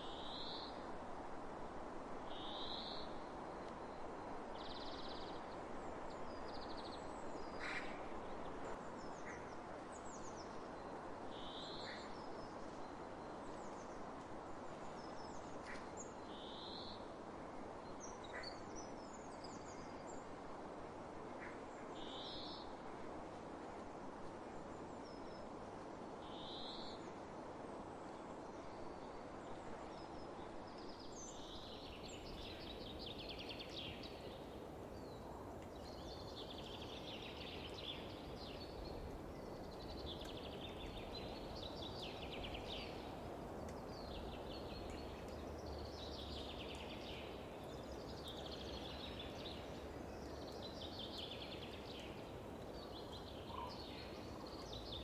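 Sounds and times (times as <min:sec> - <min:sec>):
wind over fields: 0:31.7 - 0:55.0.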